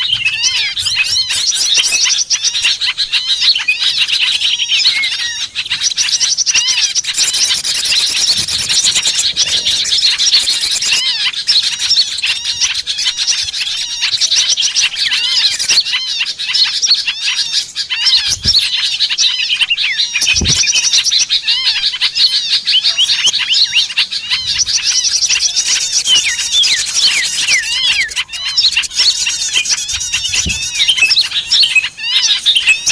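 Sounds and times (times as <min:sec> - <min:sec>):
small birds chirping: 0:00.0 - 0:32.9
low thumps: 0:30.0 - 0:30.9.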